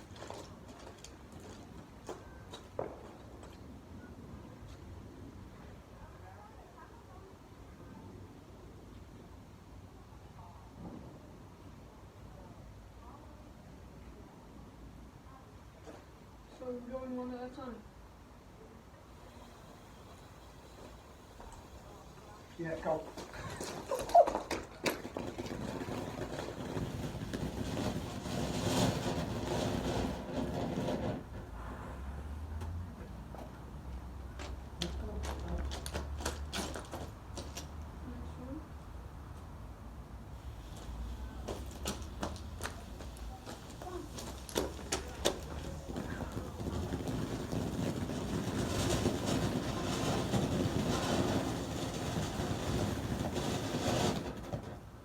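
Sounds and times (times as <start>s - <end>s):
firework rushing hiss: 19.1s - 37.8s, 40.2s - 55.0s
short bursts of hiss: 40.3s - 45.6s.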